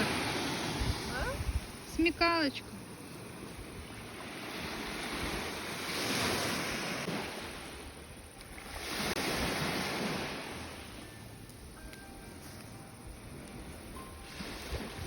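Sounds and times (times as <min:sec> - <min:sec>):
sea waves washing onto shore: 0:00.0 - 0:11.2.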